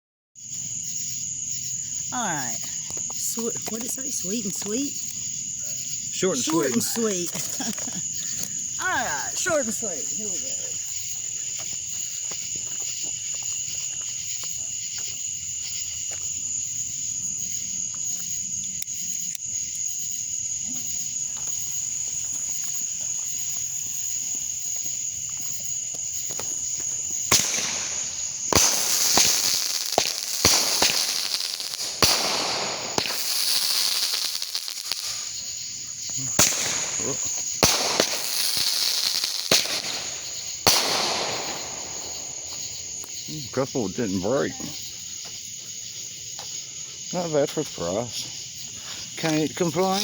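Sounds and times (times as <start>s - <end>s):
crickets chirring: 0.4s - 50.0s
firework cracks and bangs: 5.8s - 15.8s, 20.8s - 43.3s, 49.2s - 50.0s
firework hissing launches: 20.9s - 43.3s, 49.2s - 50.0s.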